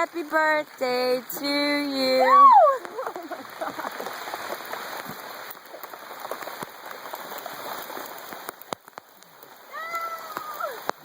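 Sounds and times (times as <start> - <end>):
heavy rain pattering: 0.0 - 11.0.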